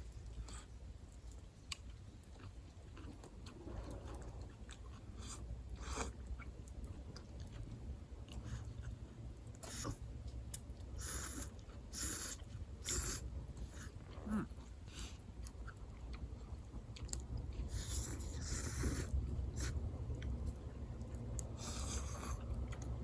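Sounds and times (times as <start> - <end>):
person chewing food: 0.0 - 23.0
low rumble: 15.3 - 23.0.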